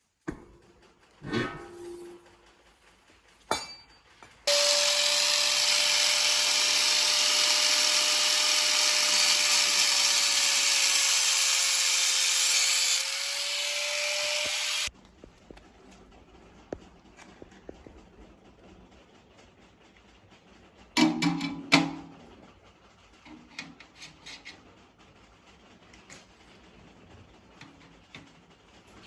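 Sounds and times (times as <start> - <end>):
power tool whining: 4.5 - 14.9.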